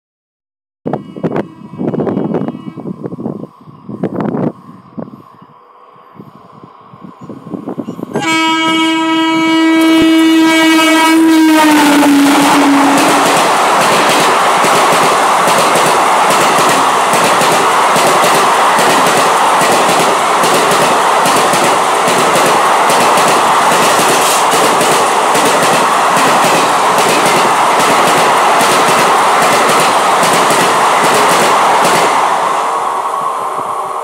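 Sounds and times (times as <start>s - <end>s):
track noise rushing: 11.4s - 34.0s.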